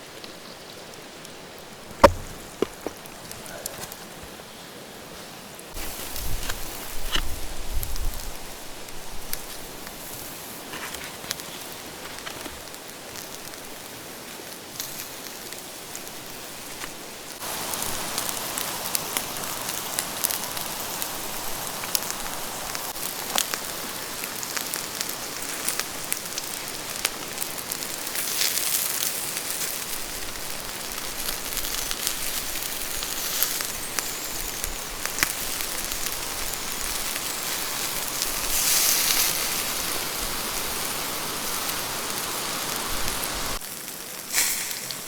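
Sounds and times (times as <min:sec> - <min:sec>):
rain falling: 0:17.4 - 0:28.1, 0:34.8 - 0:44.0.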